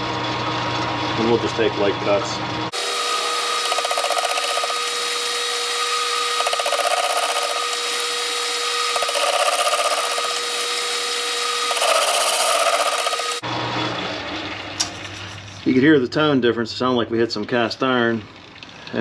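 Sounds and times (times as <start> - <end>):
metal lathe cutting: 2.7 - 13.4.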